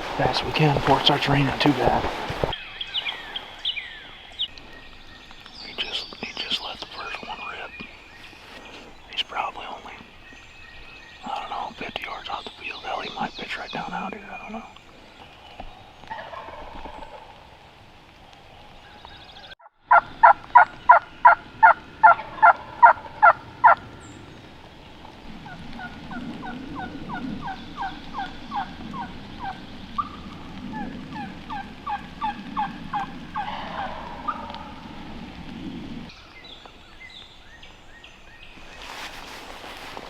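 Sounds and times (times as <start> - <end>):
low background noise: 0.0 - 40.0
wild turkey yelping: 16.1 - 17.2, 19.9 - 23.8, 25.4 - 35.0.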